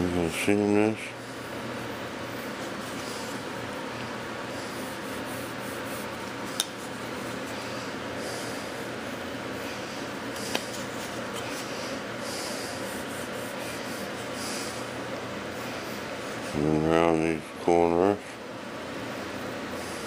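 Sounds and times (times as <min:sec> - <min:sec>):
hand rubbing on wood: 0:01.2 - 0:16.8.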